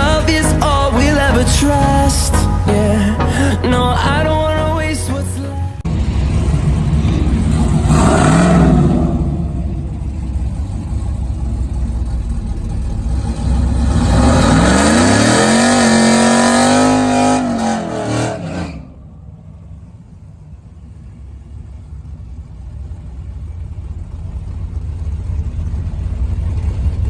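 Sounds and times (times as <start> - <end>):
racing engine revving: 5.8 - 19.0.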